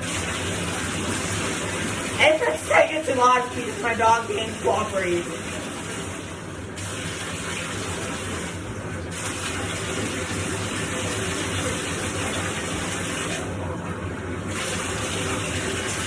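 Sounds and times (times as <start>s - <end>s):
water running into bathtub: 0.0s - 16.0s.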